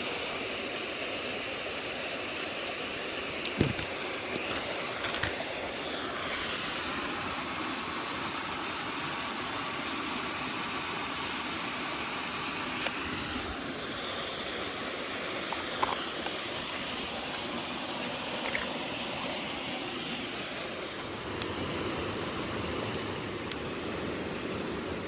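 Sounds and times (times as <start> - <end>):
stream water running over rocks: 0.0 - 25.0.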